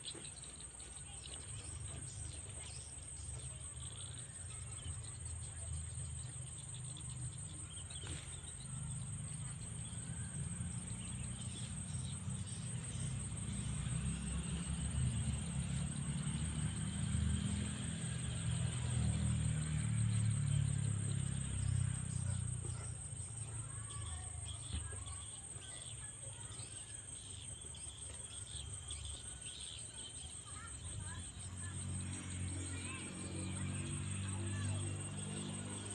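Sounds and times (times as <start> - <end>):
insects trilling: 0.0 - 35.9
faint bird chirps: 21.6 - 31.8.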